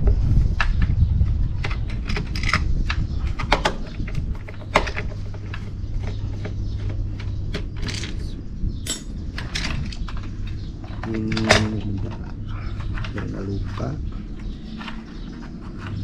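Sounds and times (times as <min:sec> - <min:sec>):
steady low hum: 0:00.0 - 0:16.0
tools clicking and knocking: 0:04.4 - 0:08.2, 0:08.8 - 0:16.0.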